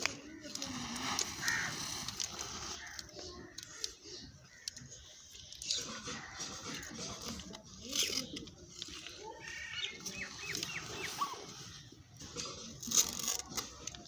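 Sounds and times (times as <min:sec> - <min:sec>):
high bird-like chirps: 0:09.4 - 0:11.8.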